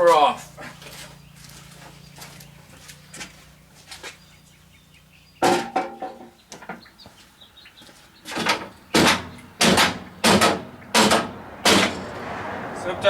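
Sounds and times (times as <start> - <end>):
hard banging blows: 8.3 - 12.4.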